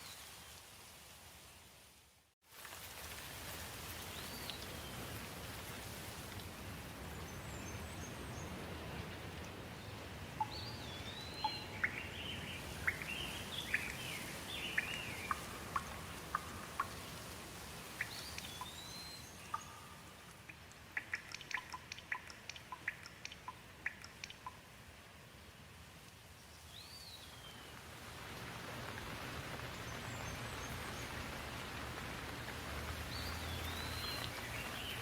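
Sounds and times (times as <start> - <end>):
steady rain: 0.0 - 35.0
water drips ticking: 8.5 - 24.8, 27.8 - 35.0.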